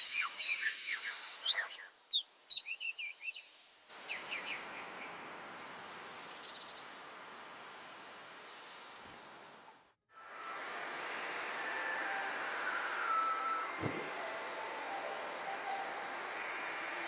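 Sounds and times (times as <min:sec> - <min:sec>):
small birds chirping: 0:00.0 - 0:07.0
outdoor hiss: 0:00.0 - 0:17.0.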